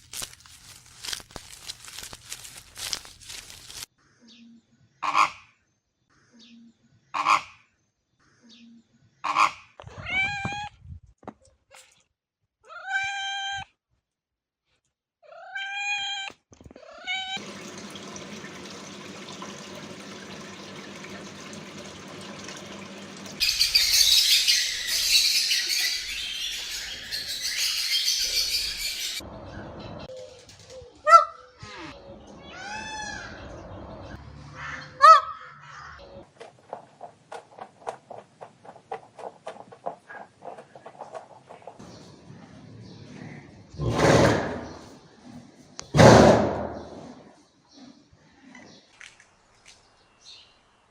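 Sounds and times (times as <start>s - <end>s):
cat meowing: 9.9s - 10.7s, 12.6s - 13.7s, 15.2s - 17.4s.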